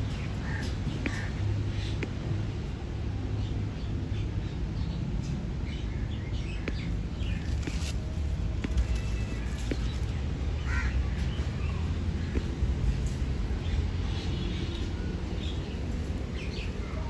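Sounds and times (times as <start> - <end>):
faint birds chirping: 0.0 - 17.0
steady low rumble: 0.0 - 17.0.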